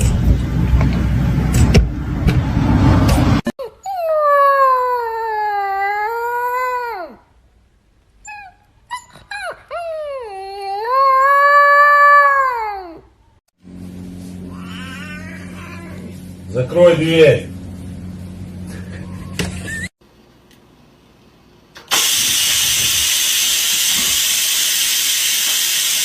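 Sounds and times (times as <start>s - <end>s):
loud rushing noise: 0.0s - 3.4s
dog howling: 9.5s - 13.0s.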